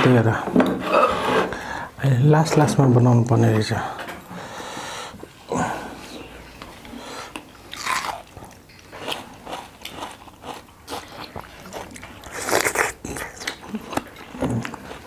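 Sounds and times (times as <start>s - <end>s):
person biting and chewing food: 7.1s - 15.0s.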